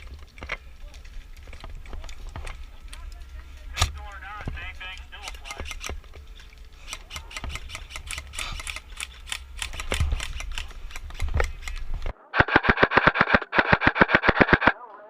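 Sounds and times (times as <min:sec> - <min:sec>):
airsoft guns clicking: 0:00.0 - 0:14.8
airsoft rifle full auto bursts: 0:12.4 - 0:14.7.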